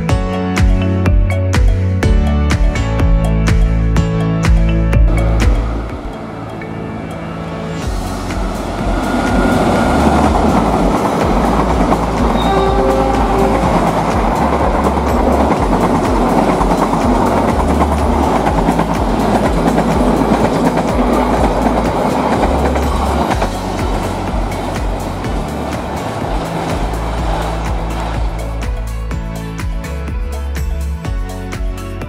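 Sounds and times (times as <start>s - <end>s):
diesel locomotive engine rumble: 2.8s - 32.0s
train wheels clattering on rails: 7.8s - 29.1s.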